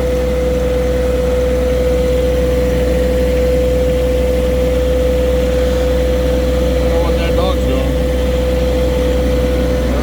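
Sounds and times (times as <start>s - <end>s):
tractor engine droning: 0.0s - 10.0s
steady whine: 2.4s - 10.0s.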